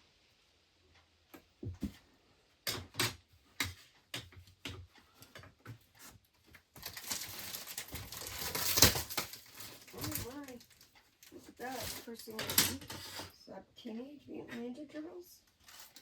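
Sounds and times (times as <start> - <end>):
continuous rustle: 3.7 - 13.4, 15.4 - 16.0.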